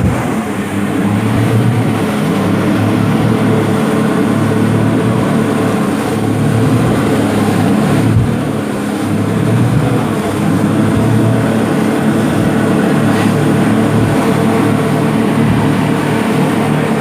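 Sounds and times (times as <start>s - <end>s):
rushing noise: 0.0s - 8.6s
motorboat engine running: 0.0s - 17.0s.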